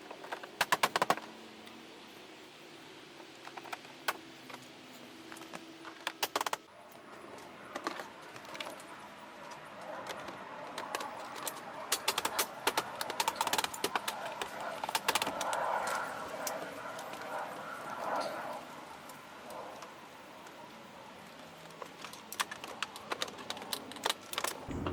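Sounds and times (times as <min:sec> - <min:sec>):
plastic clips clicking and rattling: 0:10.1 - 0:15.4.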